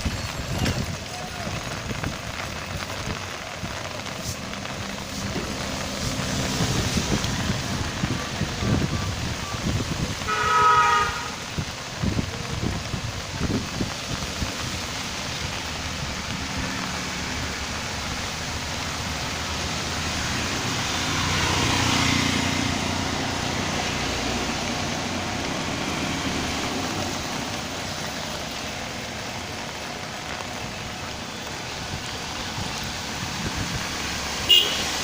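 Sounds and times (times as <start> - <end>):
steady rain falling: 0.0 - 35.0
vehicle passing by: 4.0 - 10.2, 15.6 - 30.6.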